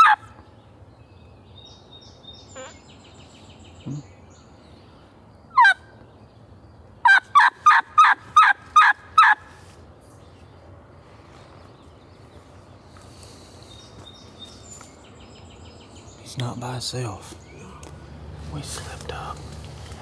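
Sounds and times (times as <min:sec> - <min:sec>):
turkey call hen yelps: 0:00.0 - 0:00.2, 0:05.5 - 0:05.8, 0:07.0 - 0:09.4.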